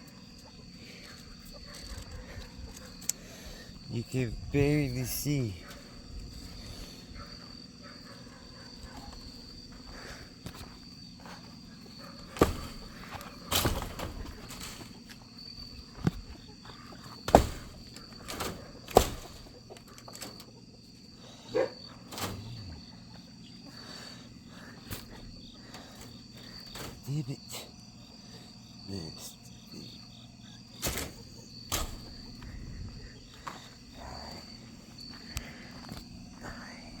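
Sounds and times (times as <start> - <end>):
insect chorus trilling: 0.0 - 37.0
sharp knocks and thuds: 12.3 - 14.8, 17.2 - 19.6.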